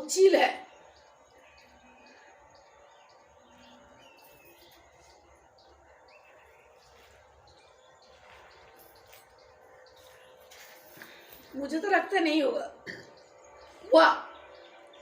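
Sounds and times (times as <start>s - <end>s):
faint bird chirps: 0.2s - 11.8s.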